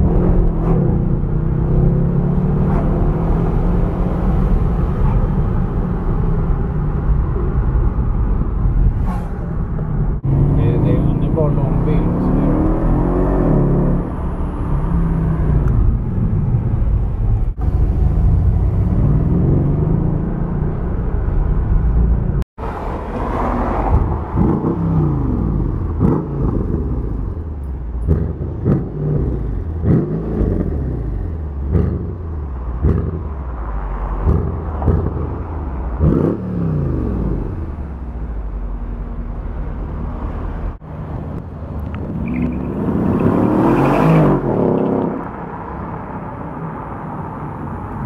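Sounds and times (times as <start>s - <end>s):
car engine revving: 0.0s - 46.4s
car accelerating past: 42.0s - 45.9s.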